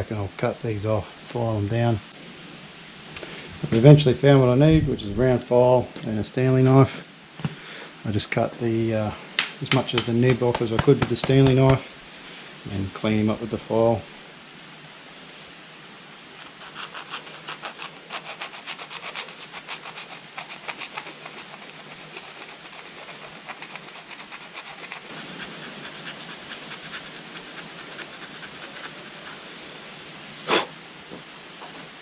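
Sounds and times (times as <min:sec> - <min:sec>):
round file rasping: 0:16.4 - 0:29.4.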